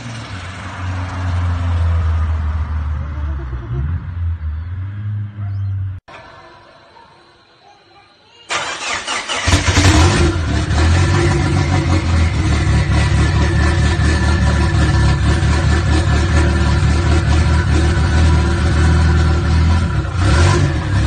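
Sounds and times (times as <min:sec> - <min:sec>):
starter motor cranking: 0:08.5 - 0:10.3
car engine idling: 0:08.5 - 0:20.2.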